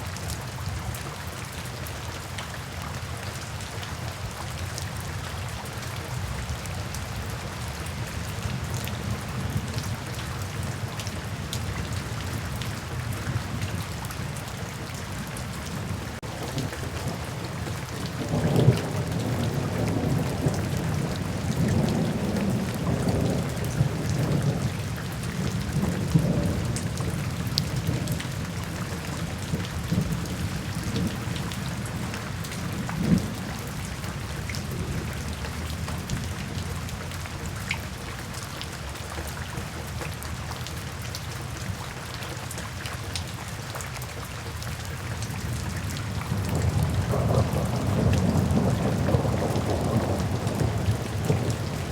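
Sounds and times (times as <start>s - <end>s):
steady rain falling: 0.0s - 51.9s
thunder rumbling: 15.8s - 33.8s, 45.6s - 51.9s.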